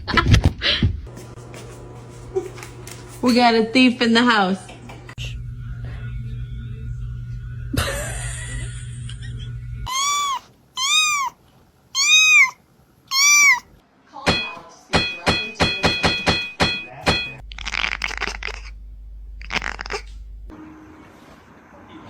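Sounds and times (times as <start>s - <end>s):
cat meowing: 9.9s - 11.4s, 12.0s - 13.7s.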